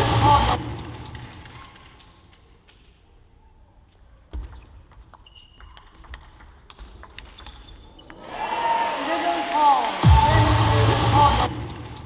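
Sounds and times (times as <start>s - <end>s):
short high squeaks: 5.1s - 6.0s.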